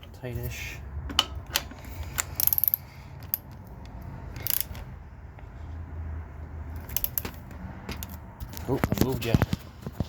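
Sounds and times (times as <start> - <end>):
socket ratchet clicking: 1.2 - 4.9, 6.8 - 7.4.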